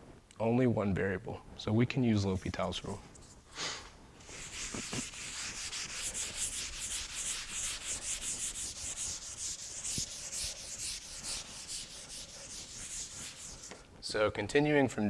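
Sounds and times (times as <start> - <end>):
eraser rubbing on chalkboard: 4.2 - 13.8.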